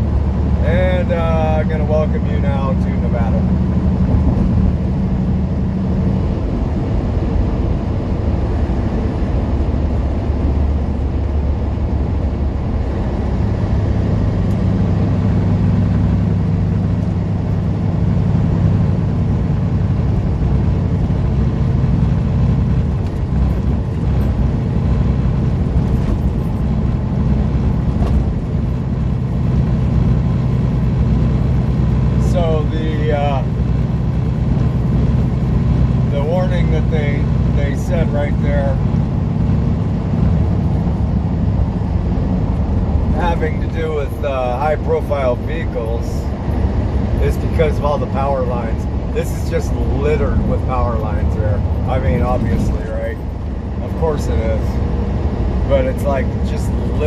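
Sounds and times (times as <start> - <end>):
road noise: 0.0 - 57.0
truck diesel engine: 0.0 - 57.0.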